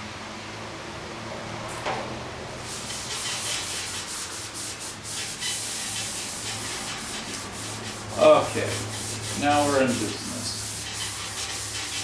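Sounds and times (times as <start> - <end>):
sanding block rasping strokes: 2.7 - 12.0.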